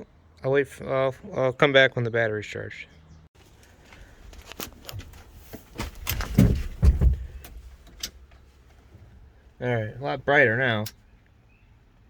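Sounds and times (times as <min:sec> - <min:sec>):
heavy thumps: 0:04.9 - 0:08.0.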